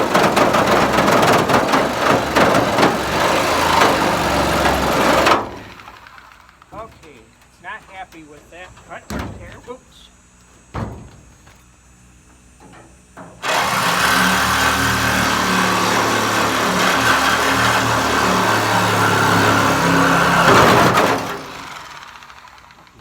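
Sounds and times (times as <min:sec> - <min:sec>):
power tool cutting sheet steel: 0:00.0 - 0:07.2, 0:13.4 - 0:23.0.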